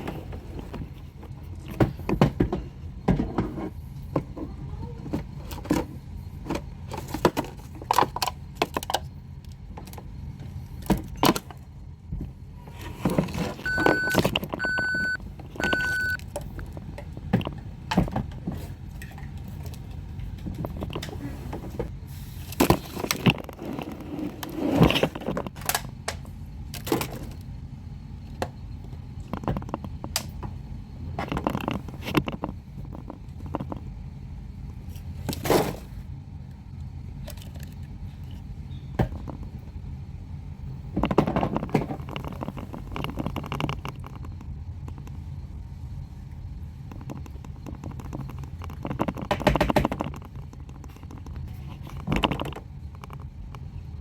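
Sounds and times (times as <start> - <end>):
short electronic beeps: 13.7 - 16.2.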